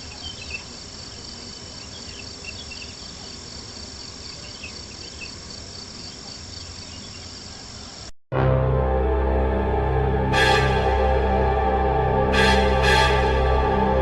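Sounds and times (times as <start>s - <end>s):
crickets trilling: 0.0s - 8.1s.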